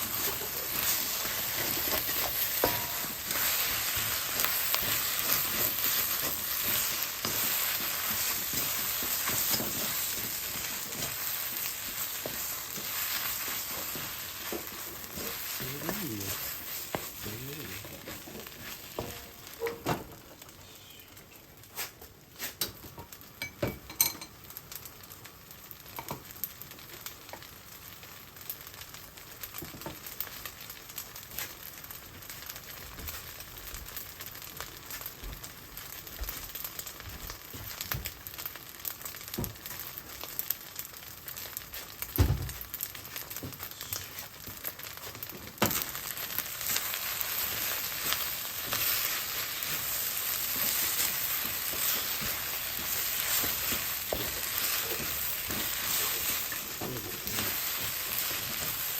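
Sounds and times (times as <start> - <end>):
stirring clicks and scrapes on pan: 0.0 - 20.5, 41.3 - 58.9
rice sizzling in a frying pan: 0.0 - 58.9.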